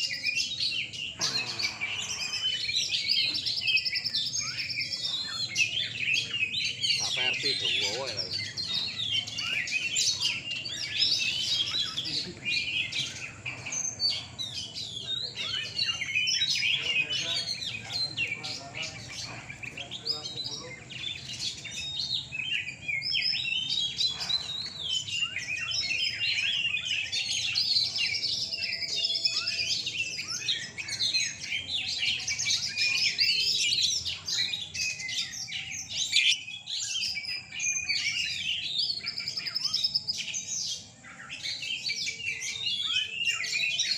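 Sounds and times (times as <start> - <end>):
birds singing whistles and trills: 0.0 - 43.9.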